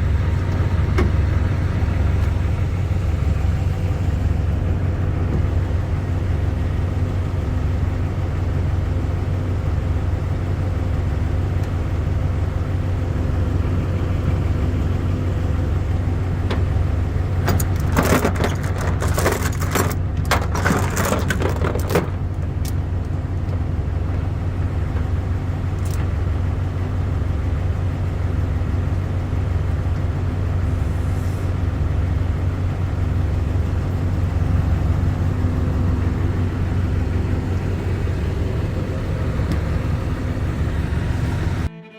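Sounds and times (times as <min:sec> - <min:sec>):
heavy engine idling: 0:00.0 - 0:41.7
metallic rattling and clanking: 0:17.4 - 0:22.8.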